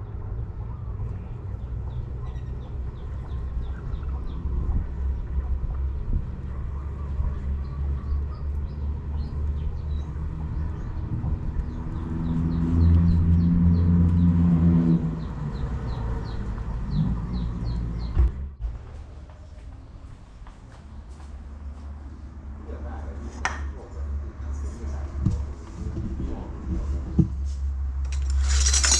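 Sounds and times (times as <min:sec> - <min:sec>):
small birds chirping: 0:00.6 - 0:06.0, 0:15.2 - 0:18.2.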